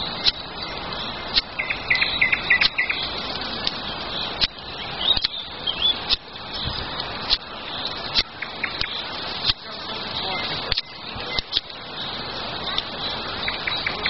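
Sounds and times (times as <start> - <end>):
small birds chirping: 0.0 - 14.0
steady hiss: 0.0 - 14.0
sharp snaps: 1.3 - 1.6, 2.5 - 2.8, 4.4 - 5.4, 6.0 - 6.3, 8.1 - 9.6, 10.7 - 11.8.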